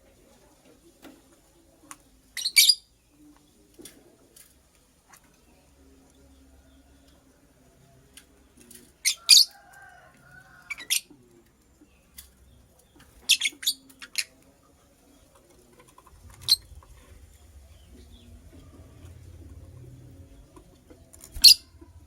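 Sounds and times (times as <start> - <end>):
bird chirping: 16.1 - 22.0.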